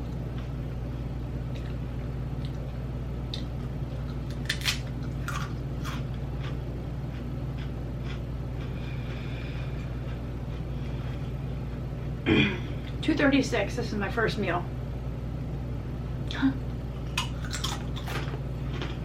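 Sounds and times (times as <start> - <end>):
steady low hum: 0.0 - 19.0
chewing crisp potato chips: 1.4 - 11.8, 17.0 - 19.0.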